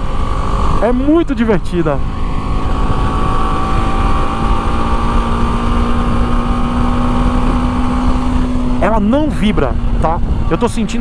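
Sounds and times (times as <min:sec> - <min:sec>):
high-pitched motorcycle engine: 0:00.0 - 0:11.0
wind noise on microphone: 0:00.0 - 0:11.0.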